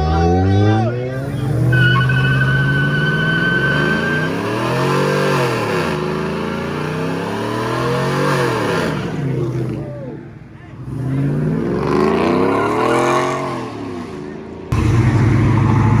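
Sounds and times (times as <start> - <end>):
high whistle: 1.3 - 6.5
car engine revving: 14.7 - 16.0.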